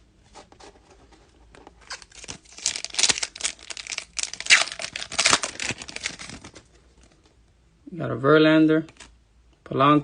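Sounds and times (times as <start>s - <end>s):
wrapper tearing and crinkling: 1.8s - 6.7s.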